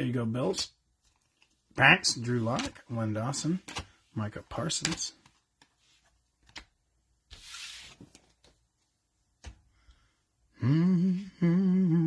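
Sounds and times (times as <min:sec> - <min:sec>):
cards sliding swish: 0:07.3 - 0:08.2.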